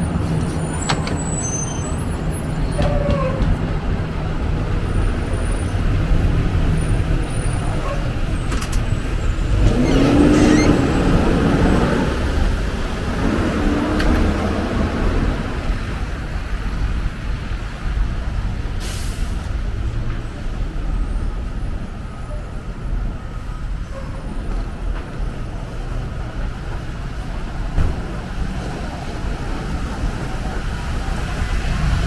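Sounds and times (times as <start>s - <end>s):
heavy vehicle engine rumble: 0.0s - 32.0s
air brakes hissing: 18.8s - 19.5s.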